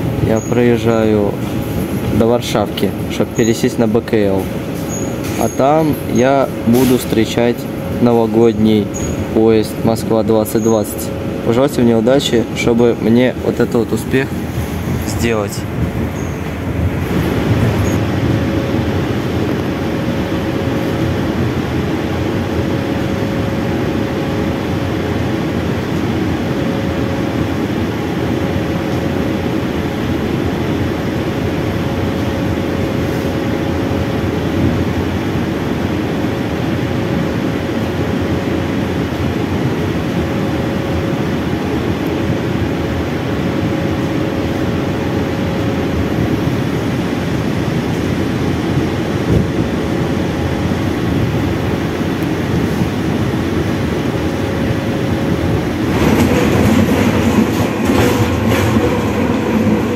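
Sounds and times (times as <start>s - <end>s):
train rumbling: 0.0s - 59.9s.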